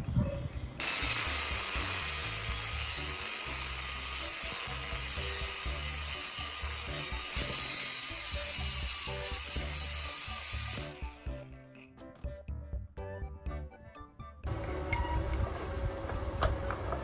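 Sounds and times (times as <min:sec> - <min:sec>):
background music: 0:00.0 - 0:17.0
angle grinder on metal: 0:00.8 - 0:11.5.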